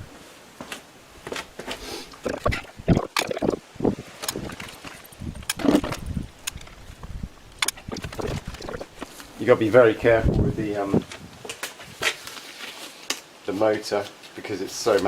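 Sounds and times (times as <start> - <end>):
metallic clicks of hand tools: 7.6 - 8.2.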